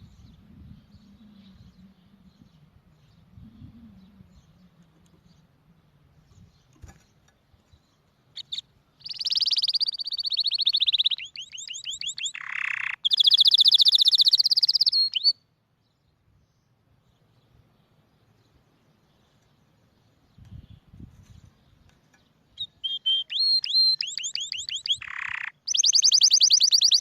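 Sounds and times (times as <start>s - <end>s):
canary singing trills: 0.0s - 15.5s, 21.8s - 27.0s.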